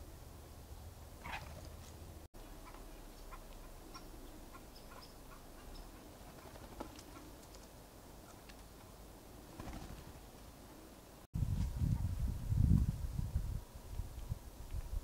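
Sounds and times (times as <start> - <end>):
faint bird chirps: 2.4 - 6.2.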